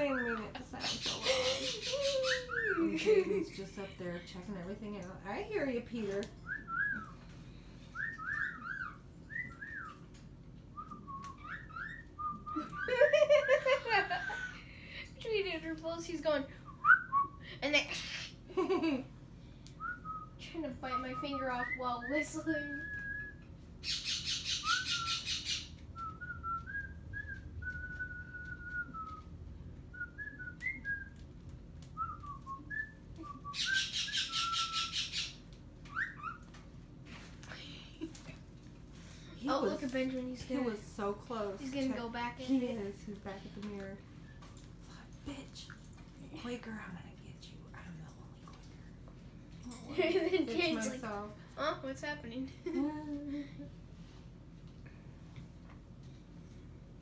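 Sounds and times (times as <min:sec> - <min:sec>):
pet bird whistling: 0:00.0 - 0:02.9, 0:08.0 - 0:10.0, 0:10.8 - 0:13.0, 0:19.8 - 0:29.3, 0:32.0 - 0:36.4
harsh buzzy bird chatter: 0:00.0 - 0:03.1, 0:23.8 - 0:25.8, 0:33.5 - 0:36.6.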